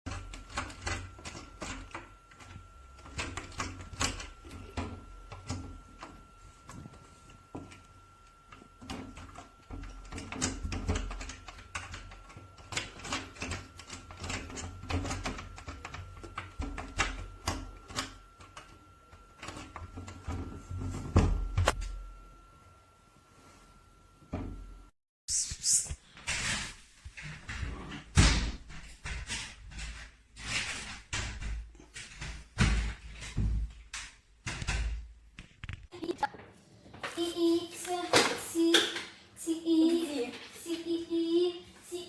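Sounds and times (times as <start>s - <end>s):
faint steady high hum: 0.1s - 24.9s.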